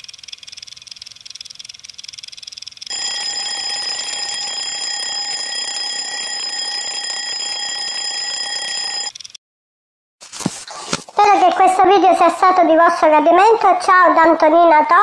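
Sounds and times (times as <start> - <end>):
alarm clock ringing: 2.9 - 9.2.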